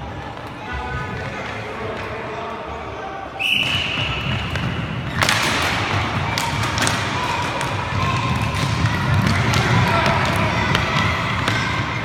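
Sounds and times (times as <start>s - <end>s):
whistle blowing: 3.4s - 4.6s
roller hockey play clicks and thuds: 3.7s - 12.0s.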